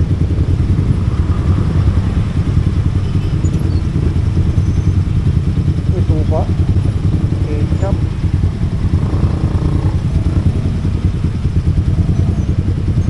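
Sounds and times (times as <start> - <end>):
vehicle rumbling on road: 0.0 - 13.0.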